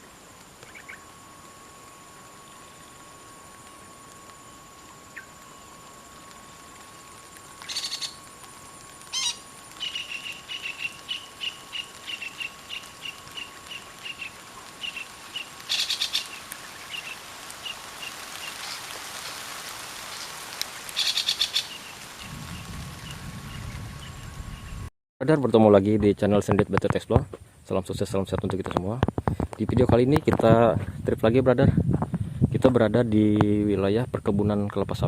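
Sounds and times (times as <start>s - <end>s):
parakeets screeching: 7.7s - 8.2s, 15.7s - 17.2s, 21.0s - 21.8s.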